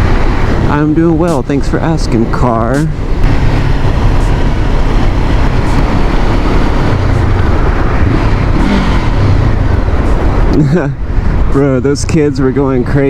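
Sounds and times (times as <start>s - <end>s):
motorcycle engine running: 0.0s - 13.0s
wind rush on microphone: 0.0s - 13.0s.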